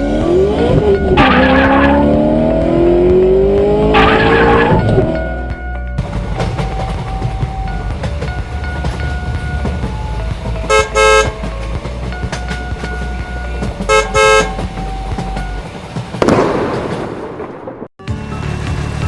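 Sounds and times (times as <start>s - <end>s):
background music: 0.0s - 17.0s, 18.0s - 19.0s
rushing noise: 0.0s - 17.6s
vehicle horn honks: 10.7s - 11.5s, 13.5s - 14.8s.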